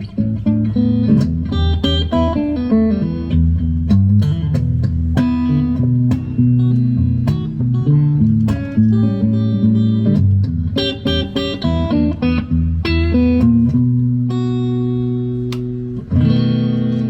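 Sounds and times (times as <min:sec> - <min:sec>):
strummed electric guitar chords: 0:00.0 - 0:17.0
guitar single-note runs: 0:10.8 - 0:17.0.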